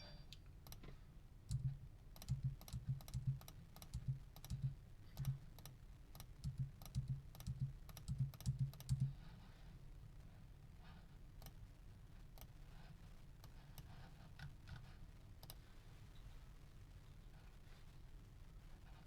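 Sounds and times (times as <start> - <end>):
keyboard typing: 1.5 - 9.2.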